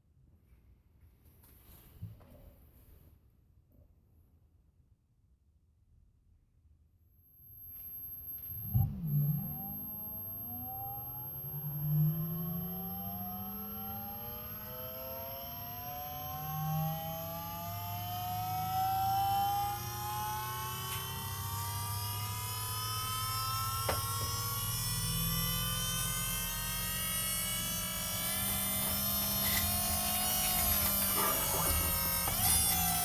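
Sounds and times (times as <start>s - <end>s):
low hum: 7.4s - 16.3s, 17.1s - 33.0s
electric motor whine: 7.4s - 33.0s.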